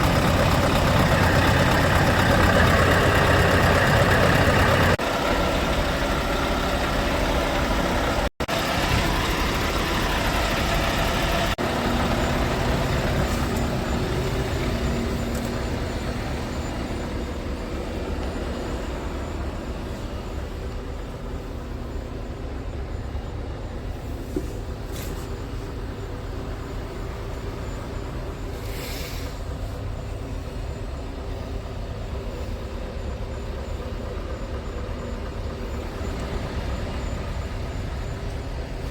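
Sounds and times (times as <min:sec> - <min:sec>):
truck diesel engine idling: 0:00.0 - 0:38.9
air hisses: 0:28.6 - 0:29.4.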